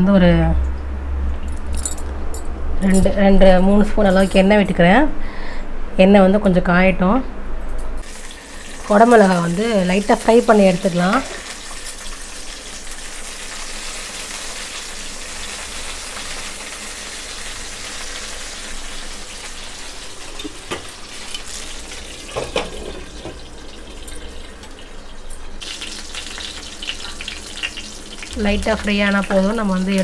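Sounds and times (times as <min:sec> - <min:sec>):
pepper sizzling in hot oil: 0:08.0 - 0:30.0.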